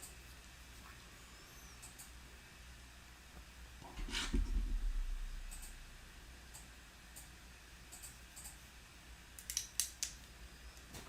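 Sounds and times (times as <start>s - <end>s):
low rumble: 4.3s - 6.3s
plastic building pieces clicking: 9.4s - 10.2s.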